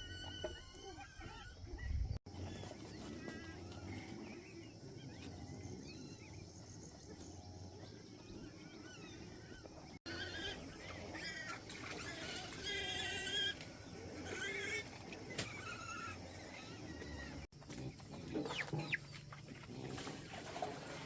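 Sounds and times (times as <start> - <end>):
farm animals crying: 0.0 - 21.0.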